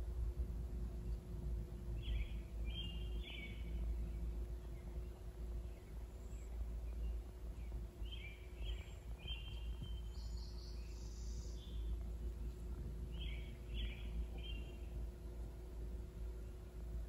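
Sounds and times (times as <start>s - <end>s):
low steady rumble: 0.0s - 17.0s
small birds chirping: 0.9s - 17.0s.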